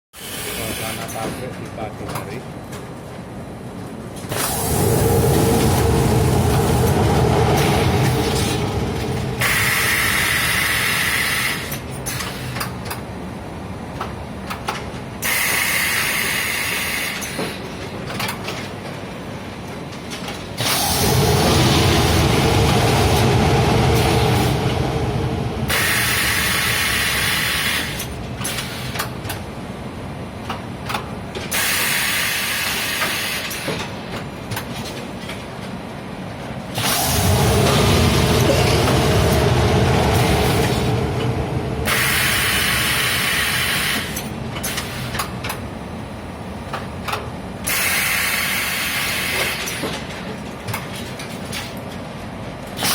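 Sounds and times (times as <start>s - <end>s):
loud hiss: 4.3s - 11.8s, 20.6s - 28.9s, 36.8s - 45.1s.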